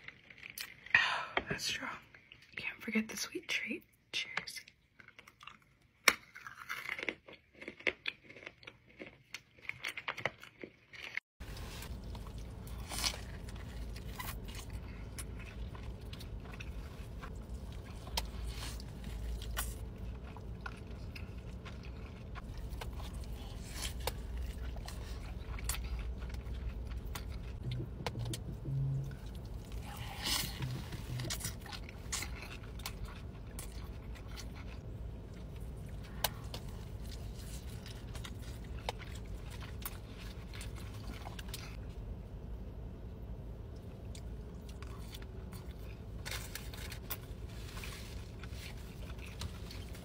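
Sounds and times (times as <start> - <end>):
chewing a mouthful of food: 4.6 - 41.8, 43.7 - 50.0
crunchy biting and chewing: 5.0 - 41.8, 44.1 - 50.0
steady low rumble: 11.4 - 50.0.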